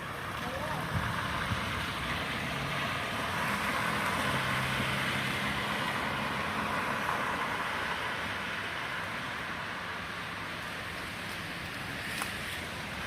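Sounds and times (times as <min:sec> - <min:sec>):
passing vehicle engine hum: 0:00.0 - 0:13.0
tyres hissing on snowy road: 0:00.0 - 0:13.0.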